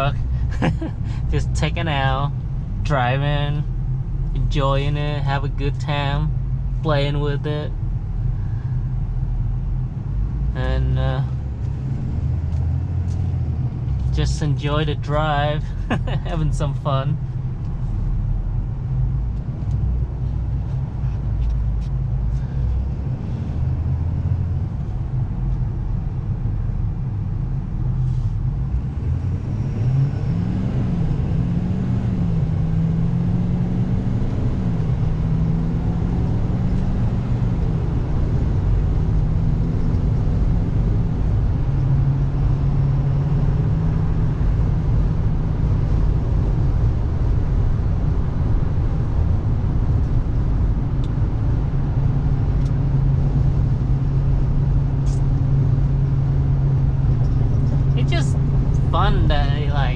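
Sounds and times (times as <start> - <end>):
diesel truck engine: 0.0 - 59.9
low road rumble: 0.0 - 59.9.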